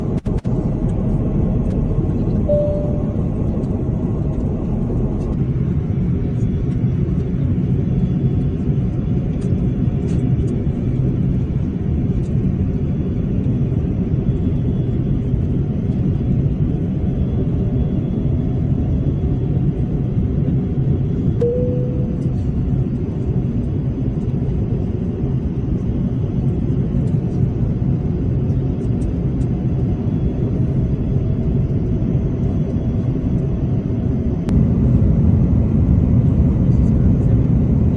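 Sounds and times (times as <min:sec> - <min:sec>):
jet engines and airflow rumble: 0:00.0 - 0:37.9
short cabin tones: 0:02.5 - 0:03.6.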